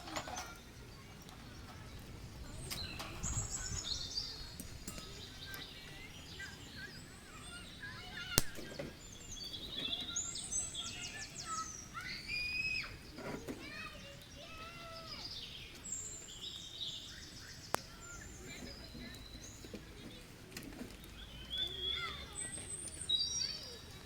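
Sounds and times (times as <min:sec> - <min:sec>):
songbirds chirping: 0:00.0 - 0:24.0
sharp click: 0:08.4 - 0:08.8.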